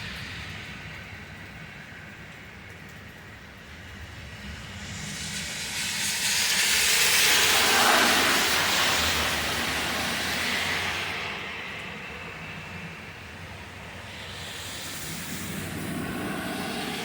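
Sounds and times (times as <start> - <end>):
tyres hissing on wet road: 3.5 - 17.0.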